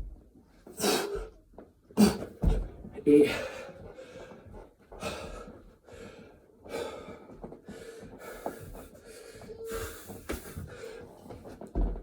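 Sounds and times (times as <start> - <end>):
man breathing hard: 3.2 - 11.2.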